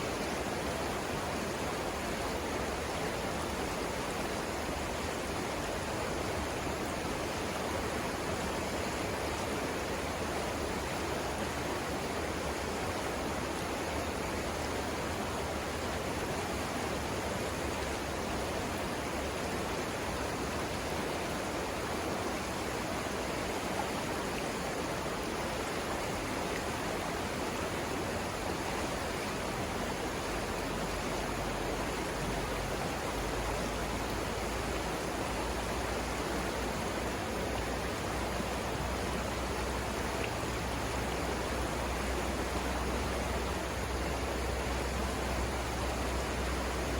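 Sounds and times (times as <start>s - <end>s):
river rushing over rapids: 0.0s - 46.9s.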